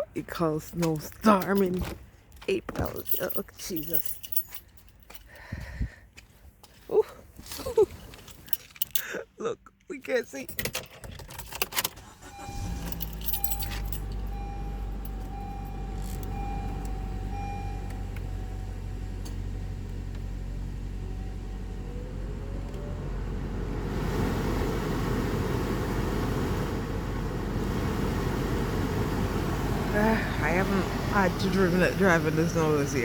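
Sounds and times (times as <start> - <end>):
car engine starting and idling: 11.5 - 33.0
car warning chime beeping: 12.2 - 19.2, 29.9 - 33.0
heater fan blowing hard: 23.4 - 33.0.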